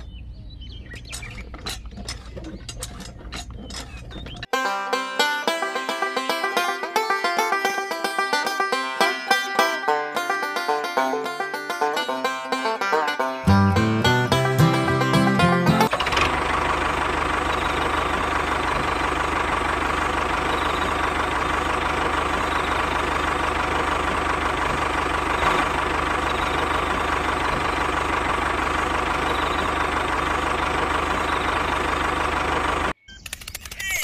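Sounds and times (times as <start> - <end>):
tractor engine running: 0.0 - 34.0.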